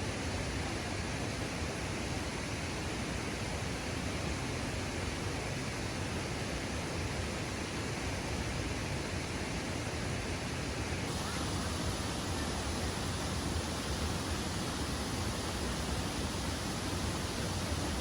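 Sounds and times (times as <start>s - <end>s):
waterfall rushing: 11.1s - 18.0s.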